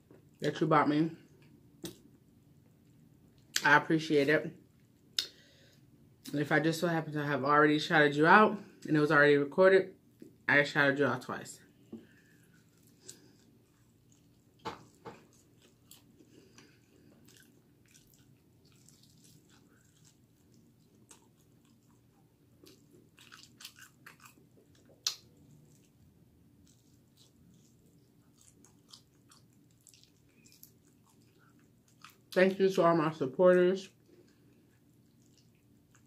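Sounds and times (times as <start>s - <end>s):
person chewing chicken wing: 12.1s - 32.4s, 34.0s - 36.0s.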